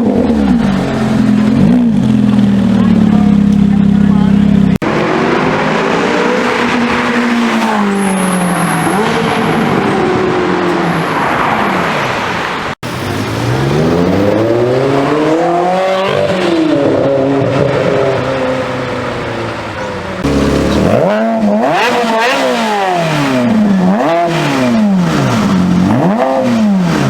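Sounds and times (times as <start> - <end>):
car engine accelerating hard: 12.8 - 27.0.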